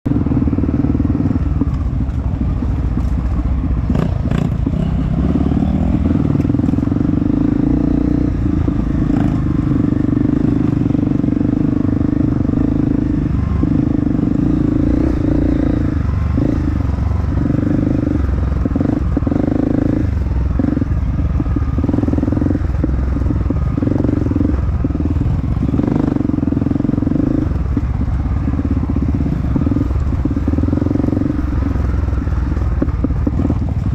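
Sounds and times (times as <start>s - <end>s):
dirt bike engine revving: 3.9s - 33.9s.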